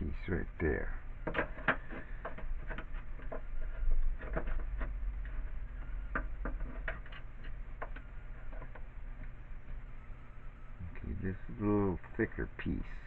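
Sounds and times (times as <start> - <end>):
steady low hum: 0.0 - 13.0
scrap pieces clicking and tapping: 1.2 - 9.3.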